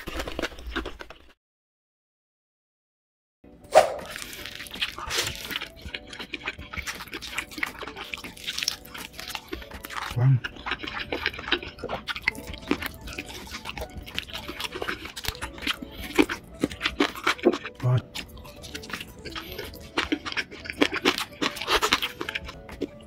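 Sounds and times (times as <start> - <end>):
crunchy chewing: 0.0 - 1.4, 3.7 - 23.0
low voice hum: 10.2 - 10.4.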